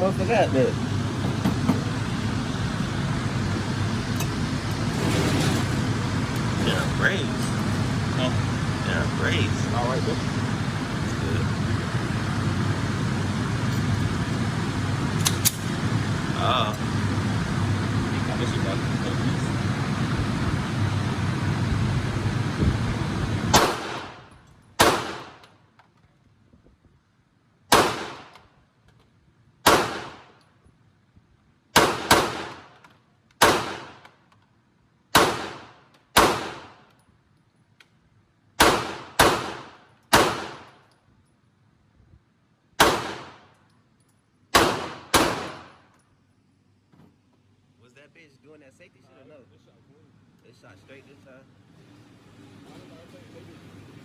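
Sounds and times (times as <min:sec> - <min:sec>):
gunshots echoing: 0:23.5 - 0:24.2, 0:24.8 - 0:25.4, 0:27.7 - 0:28.3, 0:29.7 - 0:30.3, 0:31.8 - 0:32.6, 0:33.4 - 0:34.0, 0:35.2 - 0:36.8, 0:38.6 - 0:40.7, 0:42.8 - 0:43.4, 0:44.6 - 0:45.8.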